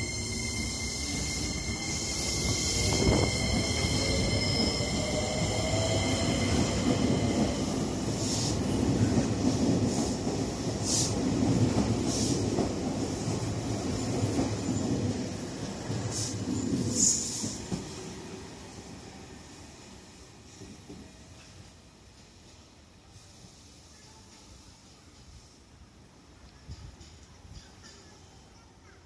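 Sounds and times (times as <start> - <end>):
wheels on rail: 0.0 - 18.1
electric train whine: 0.0 - 18.4.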